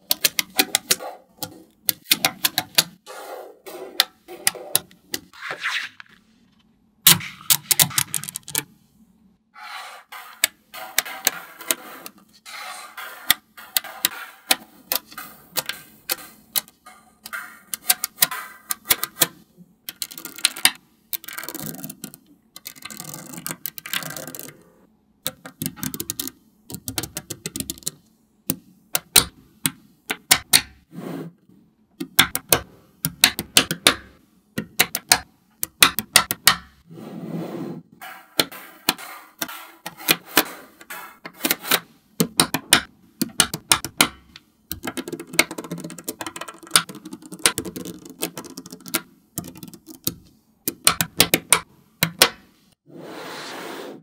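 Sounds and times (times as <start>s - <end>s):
magnetic balls clicking together: 13.0s - 24.6s, 25.2s - 30.9s, 32.0s - 36.8s, 40.8s - 52.4s.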